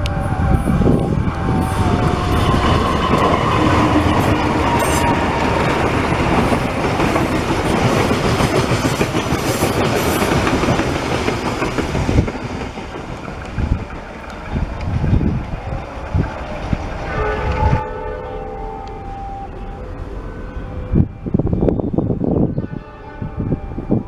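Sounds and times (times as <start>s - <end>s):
train wheels squealing: 0.0s - 6.8s
train wheels clattering over rails: 0.8s - 17.8s.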